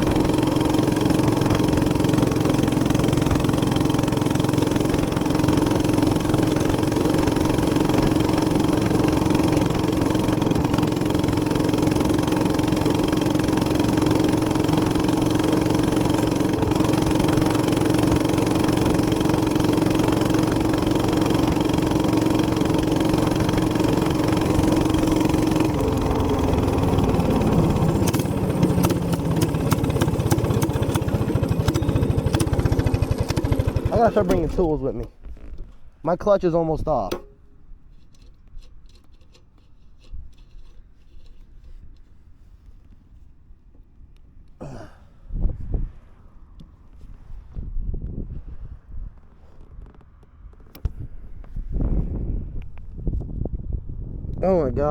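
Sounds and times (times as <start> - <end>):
rattling and clicking: 0.0 - 35.9, 37.1 - 41.7
minibike engine running: 0.0 - 36.2.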